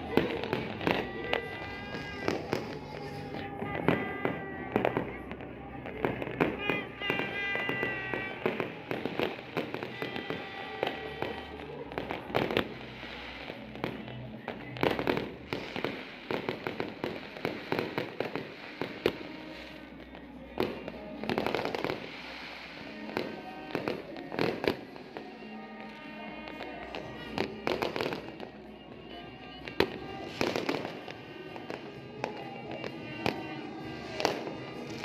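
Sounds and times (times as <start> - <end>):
fireworks bangs and crackling: 0.0 - 35.0
music playing: 0.0 - 35.0.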